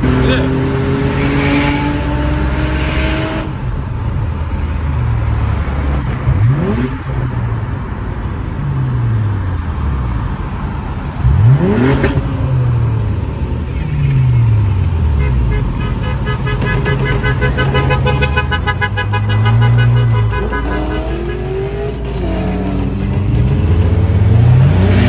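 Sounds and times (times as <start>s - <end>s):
car engines revving: 0.0s - 25.0s.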